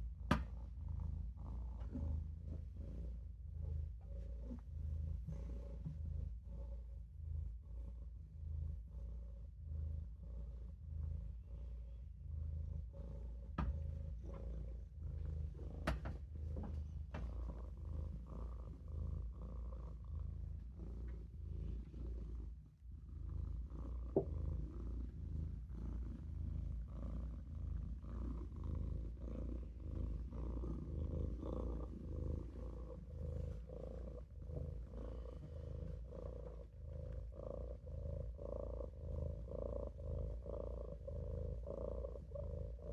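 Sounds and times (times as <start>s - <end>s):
kitten purring: 0.0s - 42.9s.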